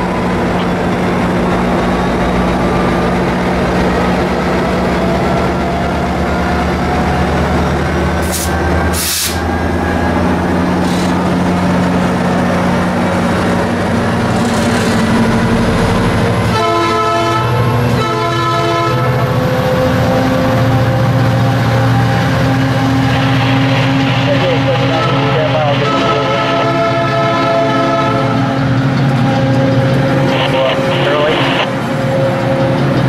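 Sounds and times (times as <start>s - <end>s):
diesel locomotive engine: 0.0s - 33.0s
brief hisses: 8.3s - 9.4s
train horn: 16.4s - 22.1s, 24.9s - 28.7s.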